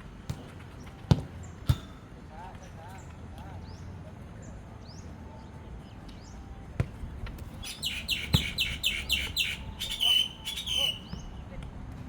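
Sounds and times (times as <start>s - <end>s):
bird chirping: 7.6s - 11.4s.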